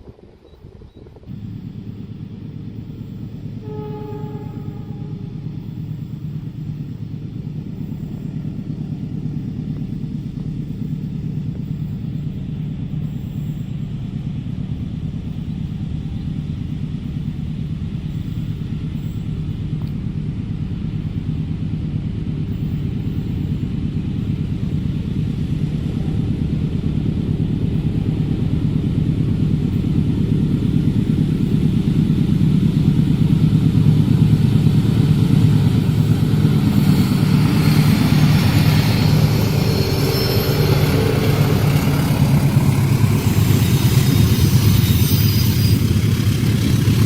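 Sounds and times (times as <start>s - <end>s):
train rumbling past: 0.0s - 47.0s
train horn toot: 3.6s - 5.7s, 36.6s - 46.1s.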